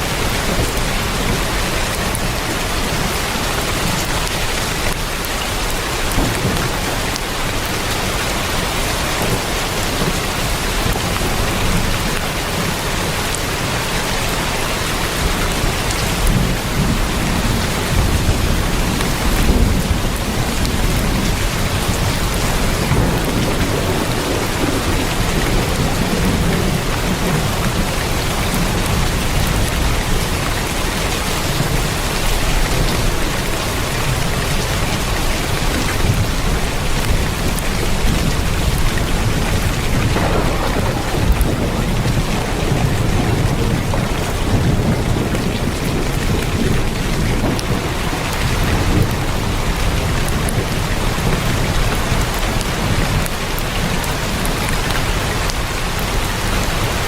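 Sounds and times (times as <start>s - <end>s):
heavy rain on a tin roof: 0.0s - 57.0s
thunder rumbling: 0.0s - 57.0s.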